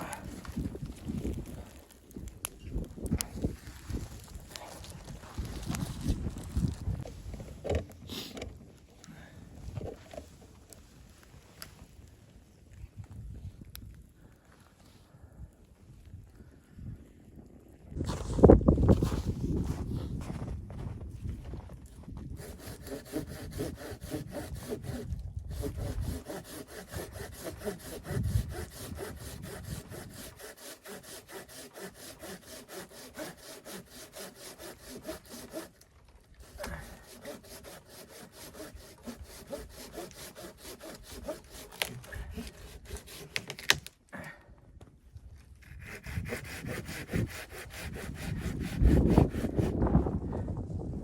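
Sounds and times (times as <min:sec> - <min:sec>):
hand saw cutting wood: 0:22.3 - 0:43.8, 0:45.6 - 0:49.8.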